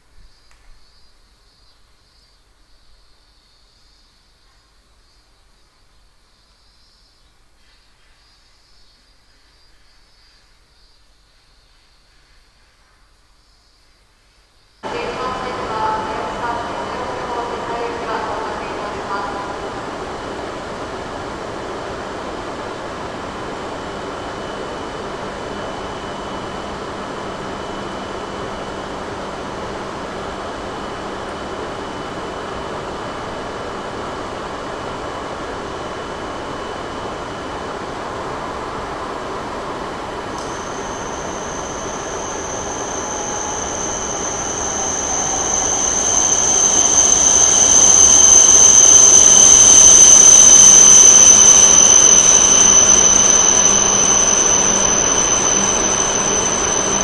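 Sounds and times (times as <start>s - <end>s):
thin high whine: 14.8s - 57.0s
train passing: 14.8s - 57.0s.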